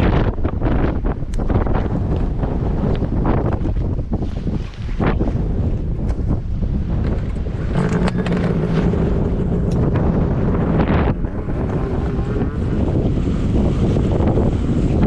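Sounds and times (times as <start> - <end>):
wind noise on microphone: 0.0 - 15.0
snowmobile engine running: 5.2 - 15.0.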